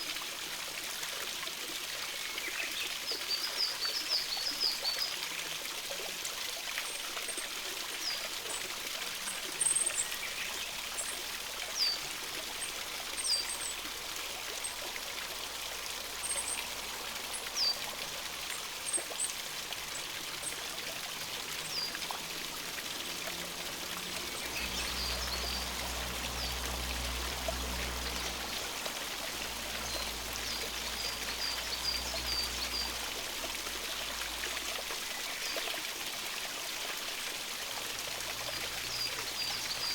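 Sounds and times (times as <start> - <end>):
stream running: 0.0 - 39.9
small birds calling: 24.2 - 26.6.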